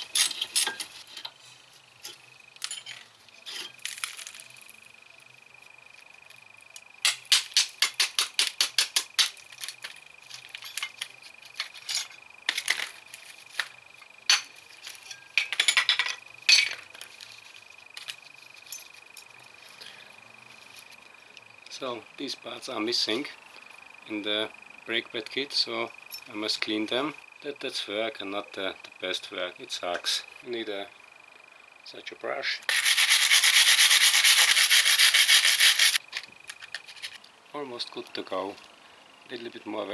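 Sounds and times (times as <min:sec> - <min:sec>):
metal tools clinking and knocking: 0:00.0 - 0:01.4, 0:02.1 - 0:03.8, 0:09.7 - 0:13.2, 0:14.3 - 0:17.0.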